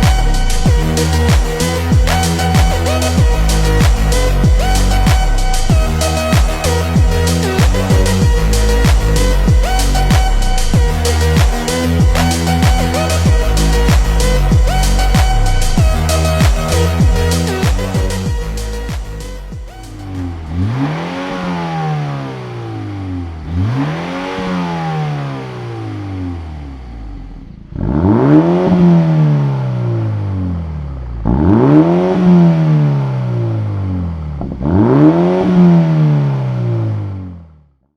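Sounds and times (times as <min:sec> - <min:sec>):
car engine revving: 0:00.0 - 0:37.6.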